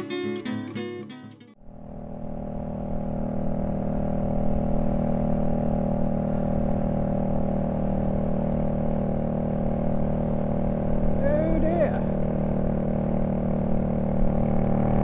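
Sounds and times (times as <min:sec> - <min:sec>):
motorcycle engine running: 0:01.6 - 0:15.0.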